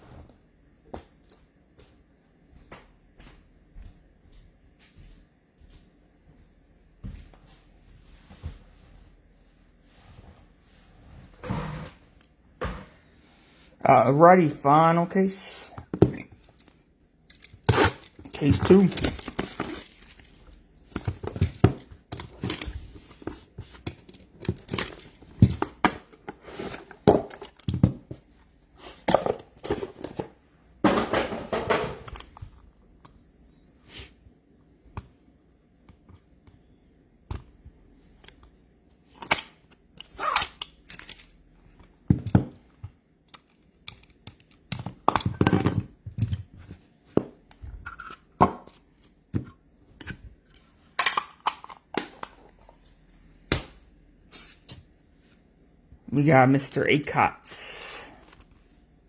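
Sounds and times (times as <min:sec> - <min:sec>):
packaging tearing and crinkling: 0:17.7 - 0:20.6
boxes knocking down: 0:29.1 - 0:32.1.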